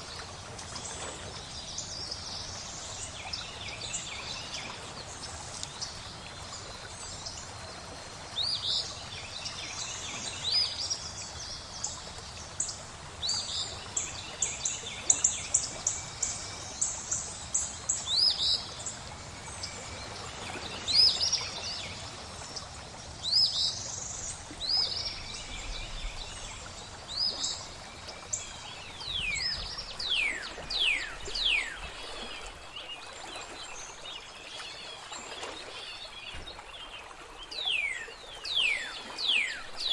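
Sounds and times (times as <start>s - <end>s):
flowing water rushing: 0.0s - 39.9s
birds calling and singing: 12.7s - 39.9s.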